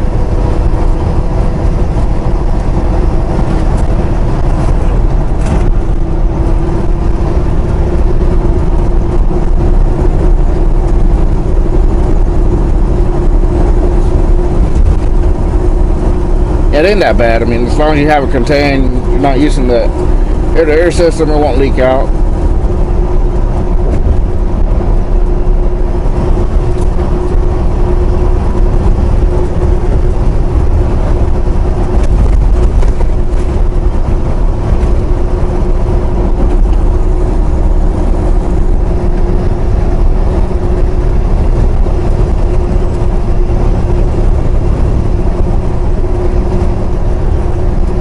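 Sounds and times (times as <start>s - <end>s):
truck engine and road noise: 0.0s - 48.0s.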